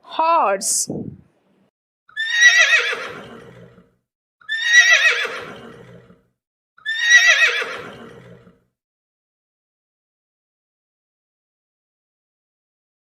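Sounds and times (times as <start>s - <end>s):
horse whinnying: 2.1s - 8.6s.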